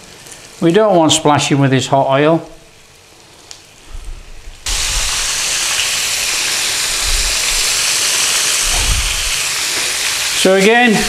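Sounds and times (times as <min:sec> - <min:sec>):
fish sizzling in hot oil: 0:04.5 - 0:11.0.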